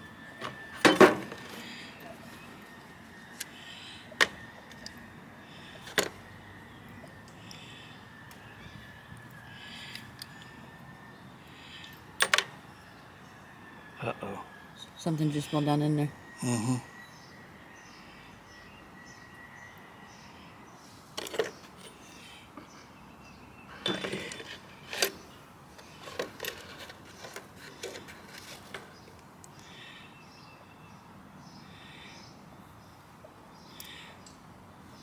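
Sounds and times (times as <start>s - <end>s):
small metal parts clicking: 23.8s - 29.0s.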